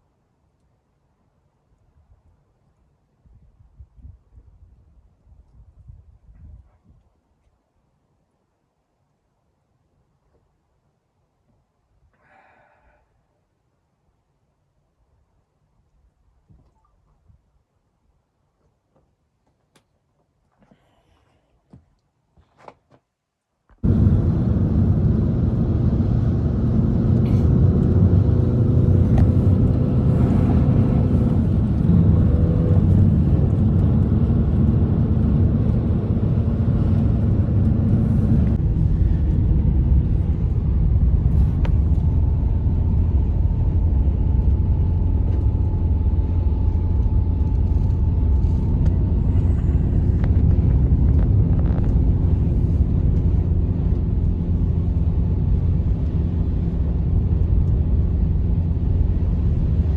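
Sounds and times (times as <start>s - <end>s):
vehicle engine rumbling: 23.8s - 59.9s.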